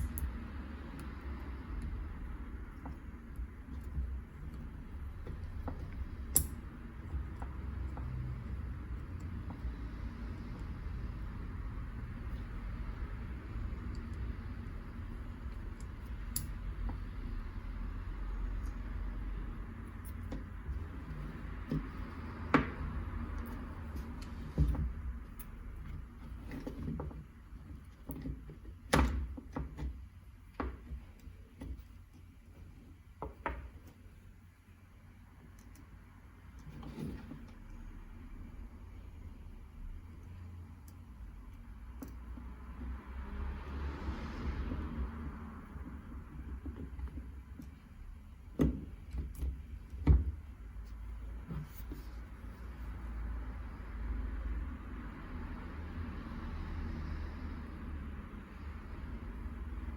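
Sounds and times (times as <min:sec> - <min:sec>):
low steady hum: 0:00.0 - 0:59.9
hard objects knocking and clicking: 0:01.6 - 0:10.0, 0:20.0 - 0:32.0.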